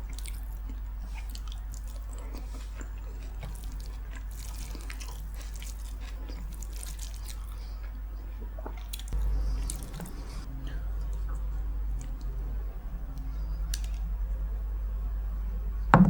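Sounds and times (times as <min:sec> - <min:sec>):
wet chewing and lip-smacking: 0:00.0 - 0:12.4
steady low hum: 0:00.0 - 0:16.0.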